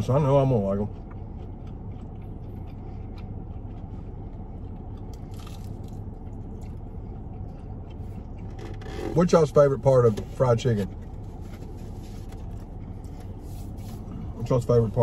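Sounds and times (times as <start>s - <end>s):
low hum inside a car: 0.0s - 15.0s
chewing mouth clicks: 0.8s - 8.6s
crunchy bite: 5.0s - 6.8s.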